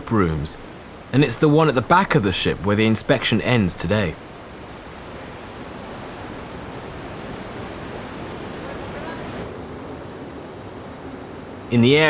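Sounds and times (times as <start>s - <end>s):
sea rushing: 0.0s - 12.0s
wind around a ship: 0.0s - 12.0s.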